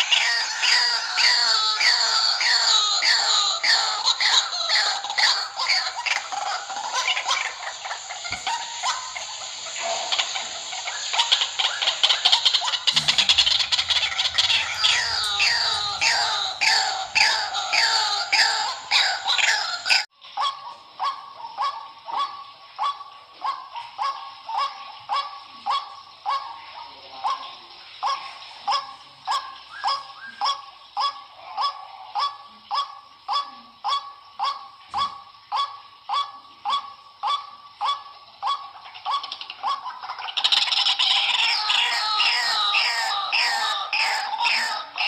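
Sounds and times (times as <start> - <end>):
chorus of harsh bird calls: 0.0 - 45.0
bird calling short notes: 12.6 - 20.1.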